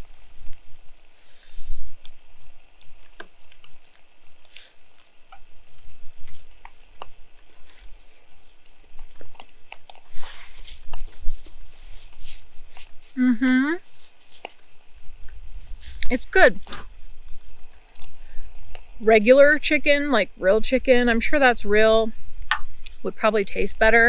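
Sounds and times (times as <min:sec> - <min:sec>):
breathy exhale: 0:01.1 - 0:02.0
person chewing food: 0:01.9 - 0:13.2, 0:17.4 - 0:19.0.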